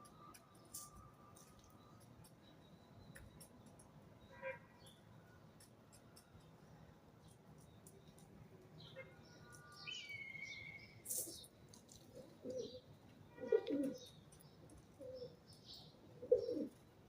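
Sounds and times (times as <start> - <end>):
small bird chirps: 7.2 - 16.8
small bird whistle: 9.8 - 11.4
pigeons cooing: 12.1 - 14.1, 14.9 - 15.4, 16.1 - 16.8.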